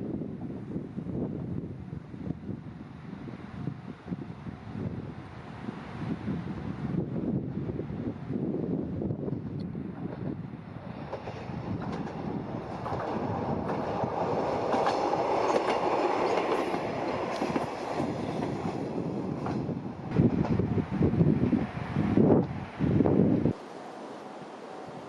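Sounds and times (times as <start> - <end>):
diesel railcar passing: 0.0 - 25.0
wheels clicking over rail joints: 11.0 - 20.6.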